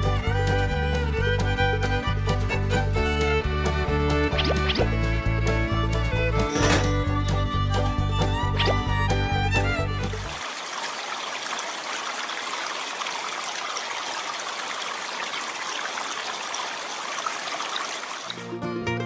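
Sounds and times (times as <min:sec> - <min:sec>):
music: 0:00.0 - 0:10.3, 0:18.4 - 0:19.0
running water trickling: 0:10.0 - 0:18.5.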